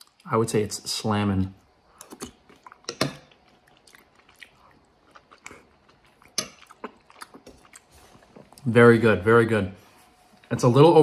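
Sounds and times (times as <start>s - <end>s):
person chewing food: 1.8s - 8.7s.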